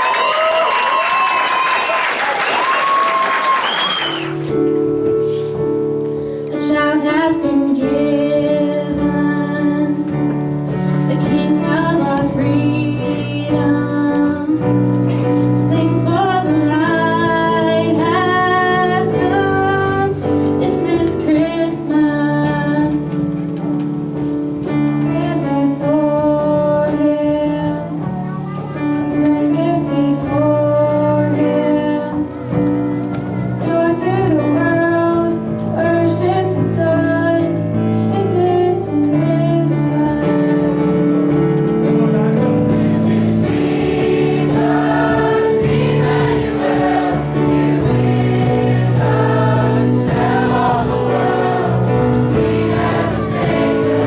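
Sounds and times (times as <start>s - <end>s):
instrumental accompaniment: 2.6s - 54.0s
school choir singing: 42.0s - 54.0s.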